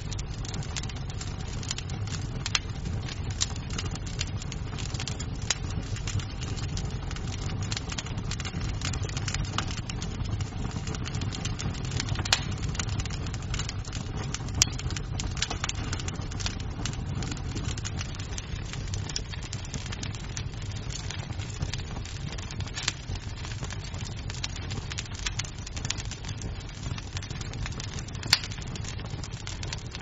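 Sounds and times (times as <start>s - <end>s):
loud fire pops: 0.0s - 30.0s
wood fire crackling: 0.0s - 30.0s.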